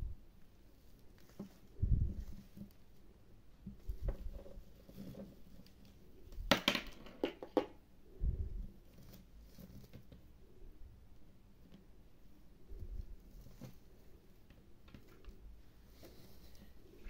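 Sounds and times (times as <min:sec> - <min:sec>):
plastic toy tapping and rustling: 0:03.6 - 0:07.8.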